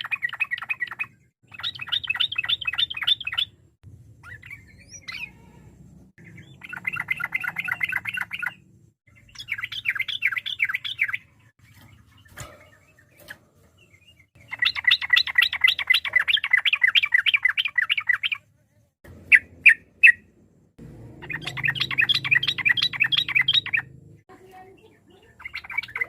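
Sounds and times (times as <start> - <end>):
bird singing fast chirping runs: 21.2 - 26.0.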